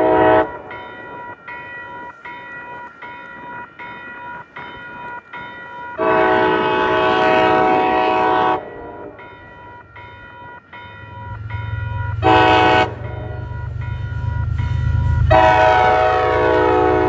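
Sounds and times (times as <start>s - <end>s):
locomotive horn blast: 0.0s - 0.5s, 6.0s - 9.2s, 12.0s - 13.5s, 15.2s - 17.0s
railroad crossing bell dinging: 0.0s - 17.0s.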